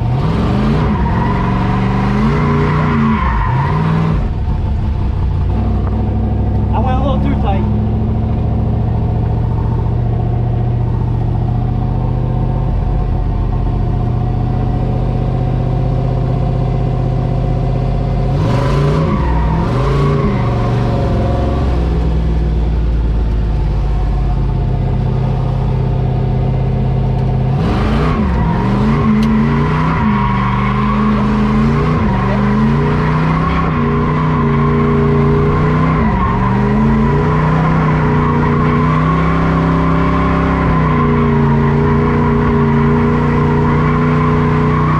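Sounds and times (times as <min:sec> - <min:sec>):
truck engine revving: 0:00.0 - 0:44.9.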